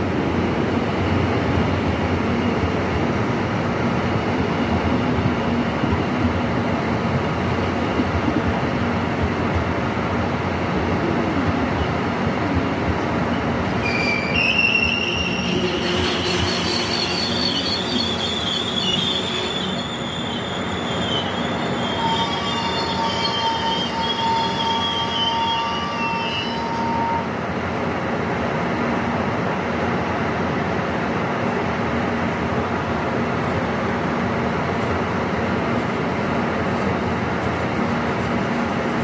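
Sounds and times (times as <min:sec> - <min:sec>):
low train rumble: 0:00.0 - 0:39.0
train wheels squealing: 0:13.3 - 0:27.3.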